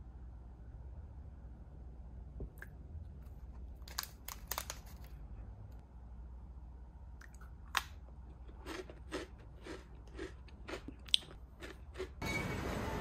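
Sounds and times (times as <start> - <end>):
crunchy biscuit bitten and chewed: 8.3 - 12.2.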